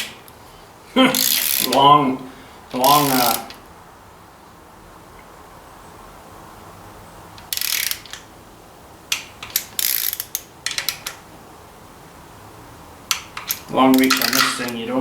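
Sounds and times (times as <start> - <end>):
torque wrench ratcheting clicks: 1.1 - 1.8, 2.8 - 3.6, 7.4 - 8.3, 9.1 - 11.2, 13.1 - 14.8.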